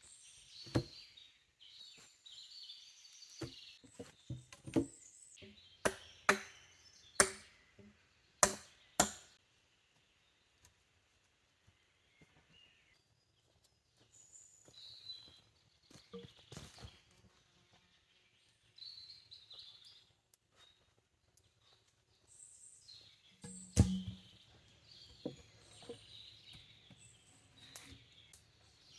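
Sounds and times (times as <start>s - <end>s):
tool striking wood: 5.9s - 6.6s, 7.2s - 7.5s, 8.4s - 9.3s, 23.4s - 24.2s.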